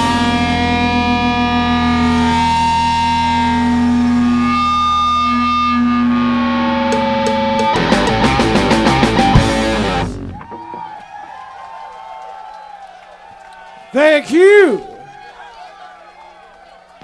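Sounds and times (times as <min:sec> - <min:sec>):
distorted electric guitar chord: 0:00.0 - 0:10.4
live rock band playing: 0:05.3 - 0:10.6.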